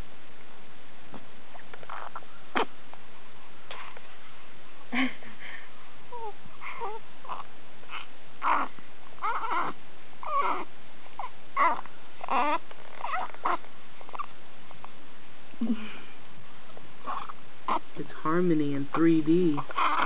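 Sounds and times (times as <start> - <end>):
infant grunting and whimpering: 6.1 - 14.3, 17.0 - 18.0, 19.5 - 20.0.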